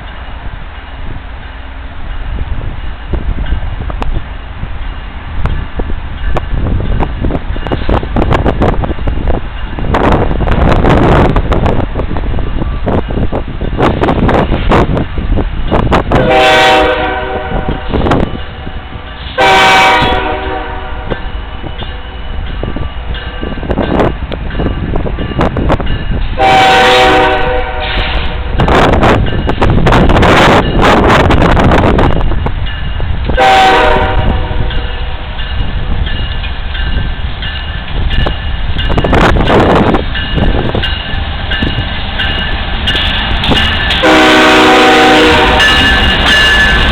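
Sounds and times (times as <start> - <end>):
freight train rumbling by: 0.0 - 46.9
wind buffeting microphone: 0.0 - 46.9
locomotive air horn blasts: 16.1 - 17.9, 19.4 - 21.2, 26.4 - 28.5, 33.4 - 35.2, 44.0 - 45.9.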